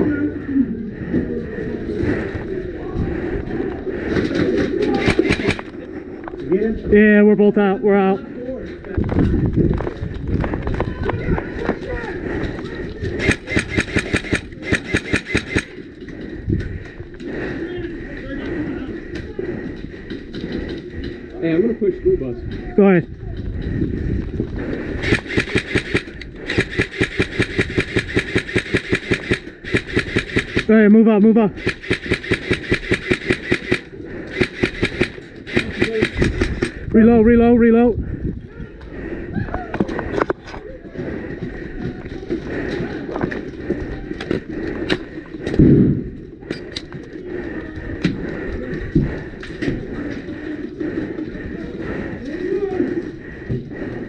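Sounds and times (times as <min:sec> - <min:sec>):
airsoft rifle firing full auto: 0:05.0 - 0:05.7, 0:13.2 - 0:15.8, 0:25.0 - 0:30.7, 0:31.6 - 0:36.7
footsteps: 0:39.7 - 0:54.0.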